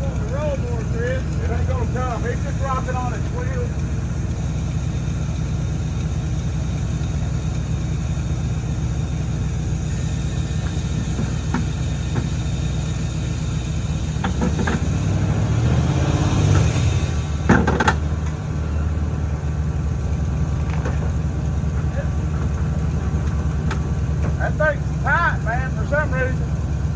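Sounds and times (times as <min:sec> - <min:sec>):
heavy diesel engine running: 0:00.0 - 0:26.9.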